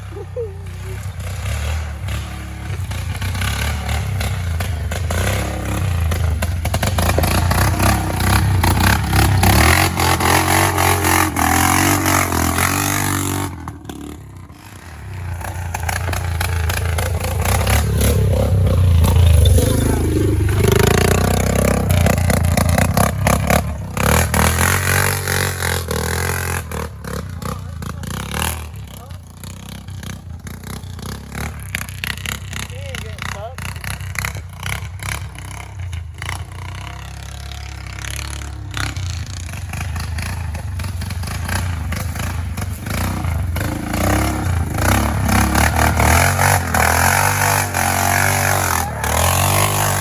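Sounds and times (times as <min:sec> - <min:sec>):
truck engine revving loud: 0:00.8 - 0:29.0, 0:41.3 - 0:50.0.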